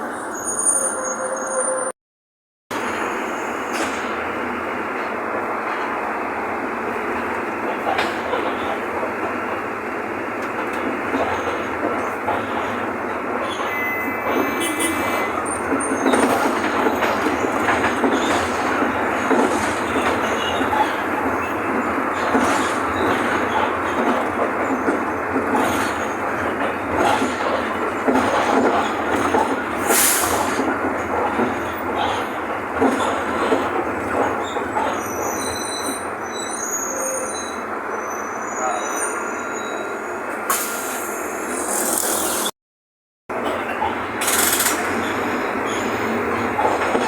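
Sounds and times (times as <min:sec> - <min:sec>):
bus engine and road noise: 0:02.7 - 0:42.6, 0:43.3 - 0:47.0
short high squeaks: 0:34.9 - 0:42.5.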